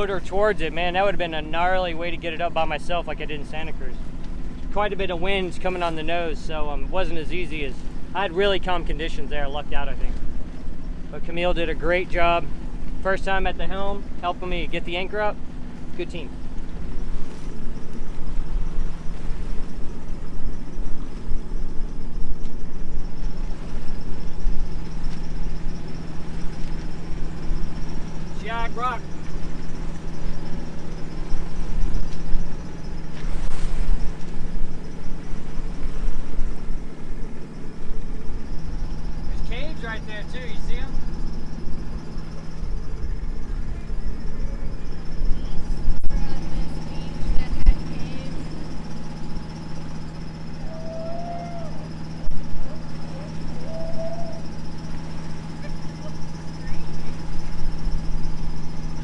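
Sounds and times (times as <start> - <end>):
boat engine humming: 0.0 - 59.0
wind buffeting microphone: 16.6 - 39.2.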